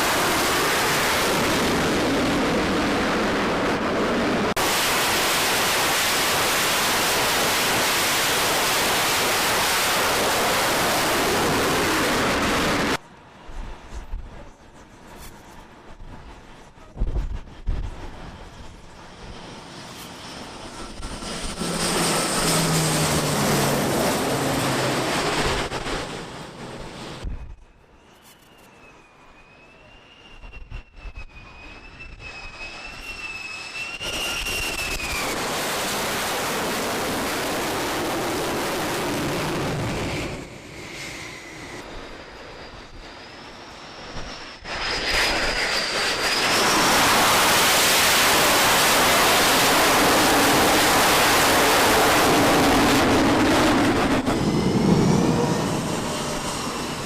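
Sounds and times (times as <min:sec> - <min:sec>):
rushing jet blast: 0:00.0 - 0:13.0, 0:20.1 - 0:27.6, 0:30.3 - 0:57.0
jet turbine whine: 0:00.0 - 0:57.0.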